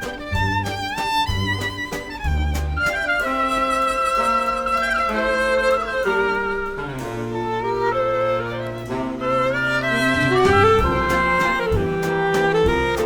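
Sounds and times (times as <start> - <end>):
low bass line: 0.0 - 3.0, 7.0 - 13.0
melody of held notes: 0.0 - 13.0.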